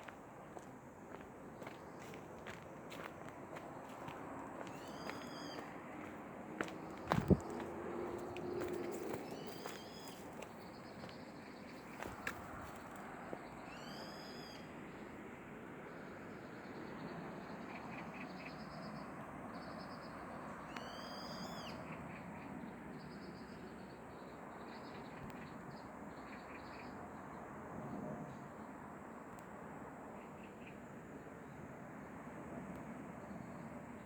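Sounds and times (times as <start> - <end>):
birds chirping: 0.0 - 12.9
forest bird calling: 3.9 - 7.6, 8.6 - 11.2, 13.7 - 14.7, 20.7 - 21.8.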